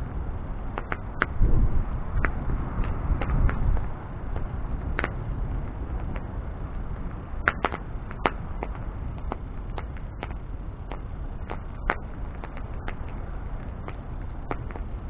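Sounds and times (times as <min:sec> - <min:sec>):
bonfire crackling and popping: 0:00.0 - 0:15.0
low rush of burning flame: 0:00.0 - 0:15.0.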